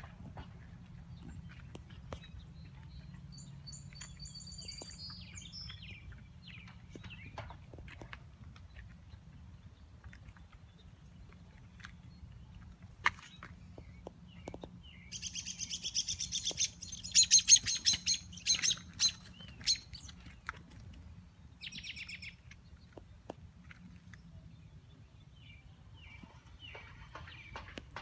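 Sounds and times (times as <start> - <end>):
songbird trilling: 14.4 - 20.2.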